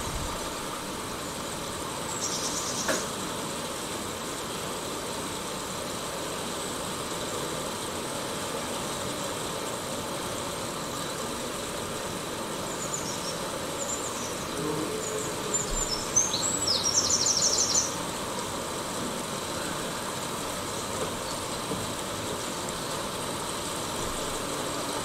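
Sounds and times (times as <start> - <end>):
steady background hum: 0.0 - 25.0
blackbirds chirping: 2.1 - 3.0, 12.6 - 18.0.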